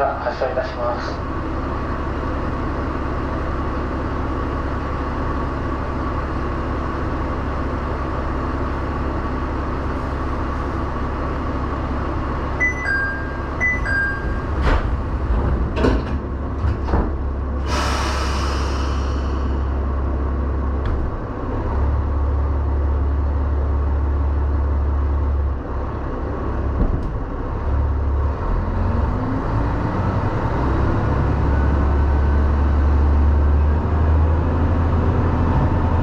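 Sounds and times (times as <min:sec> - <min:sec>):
diesel railcar engine running: 0:00.0 - 0:36.0
two-note door chime: 0:12.6 - 0:14.5
doors closing knocks: 0:12.6 - 0:17.4
air hiss: 0:17.6 - 0:19.6.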